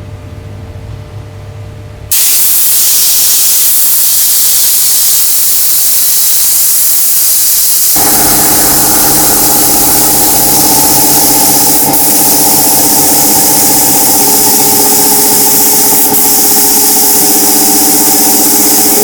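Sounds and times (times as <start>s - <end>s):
compressed air hissing: 2.1s - 19.0s
motor humming: 4.9s - 19.0s.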